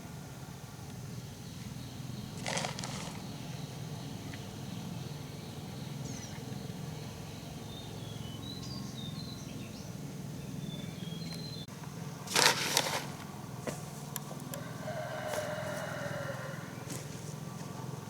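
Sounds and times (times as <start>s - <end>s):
small birds chirping: 0.9s - 11.7s.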